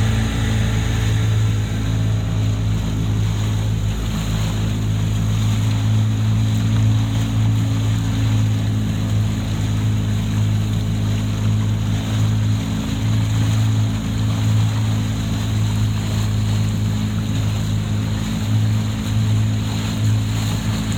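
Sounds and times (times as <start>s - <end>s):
boat engine humming: 0.0s - 20.9s
water rushing: 0.0s - 20.9s
wind: 0.0s - 20.9s.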